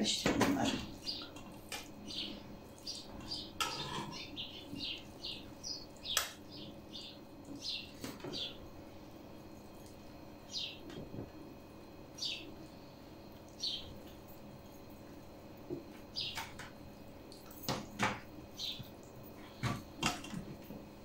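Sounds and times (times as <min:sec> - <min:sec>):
small bird chirping: 0:00.7 - 0:08.6, 0:10.5 - 0:10.9, 0:12.2 - 0:12.6, 0:13.5 - 0:14.0, 0:16.1 - 0:16.5, 0:18.6 - 0:18.9.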